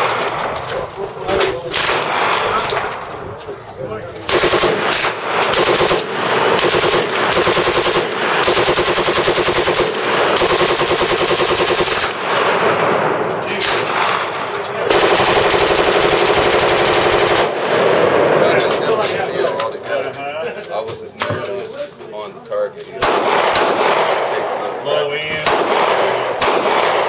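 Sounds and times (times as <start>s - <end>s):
automatic gunfire bursts: 4.3s - 12.7s, 13.6s - 18.1s, 23.0s - 24.3s, 25.4s - 27.0s.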